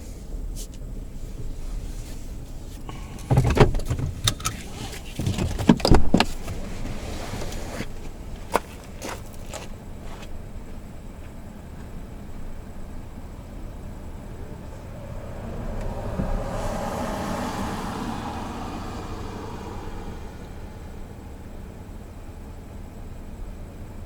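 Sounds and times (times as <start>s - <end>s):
knocks and clatters: 2.8s - 9.8s.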